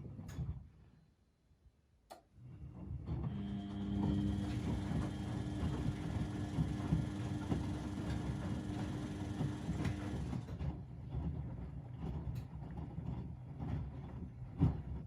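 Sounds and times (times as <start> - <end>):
motor hum: 3.2 - 10.5
washing machines rumbling: 3.2 - 10.7.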